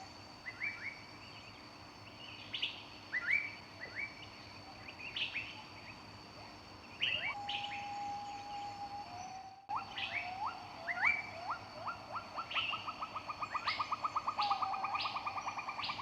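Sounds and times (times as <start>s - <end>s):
long steady whistled note: 7.2s - 12.0s.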